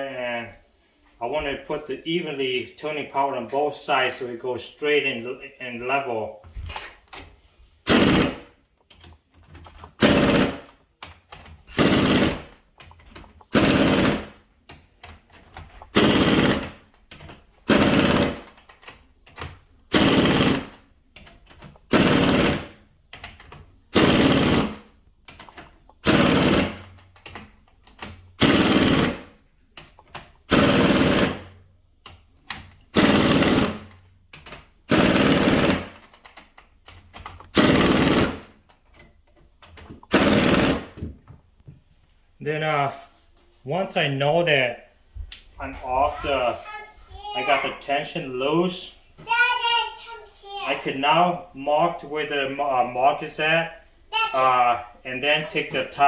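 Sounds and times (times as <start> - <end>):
impact wrench hammering: 7.8 - 8.6, 9.6 - 18.8, 19.9 - 20.9, 21.6 - 38.7, 39.7 - 41.3.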